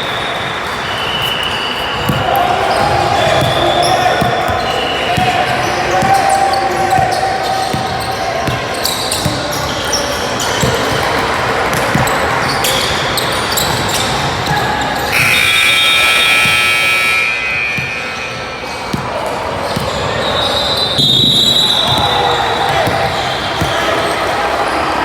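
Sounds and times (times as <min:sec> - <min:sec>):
crowd murmur: 0:00.0 - 0:25.0
basketball bouncing on gym floor: 0:02.0 - 0:15.5, 0:17.7 - 0:24.1
sustained high tone: 0:15.1 - 0:18.9.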